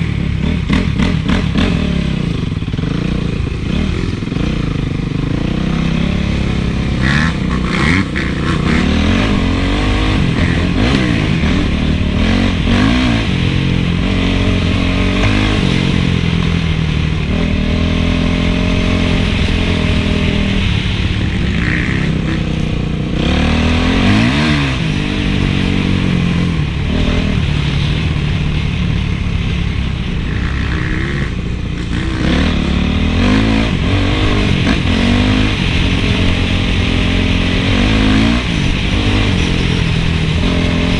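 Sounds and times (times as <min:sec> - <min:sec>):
motocross engine revving: 0:00.0 - 0:40.9.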